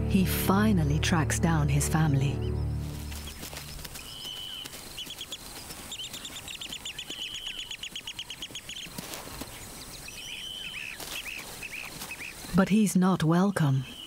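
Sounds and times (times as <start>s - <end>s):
fast bird chirps: 2.4s - 12.6s
bird whistle: 4.0s - 5.4s.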